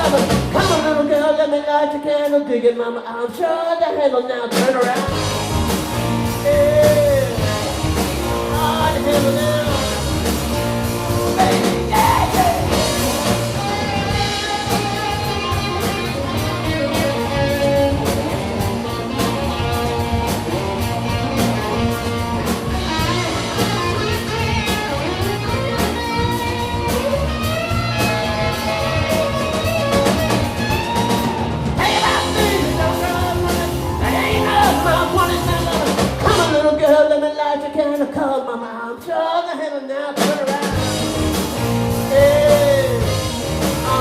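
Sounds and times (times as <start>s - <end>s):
live rock band: 0.0s - 39.2s, 40.1s - 44.0s
bending guitar lead: 5.0s - 36.8s, 40.7s - 44.0s.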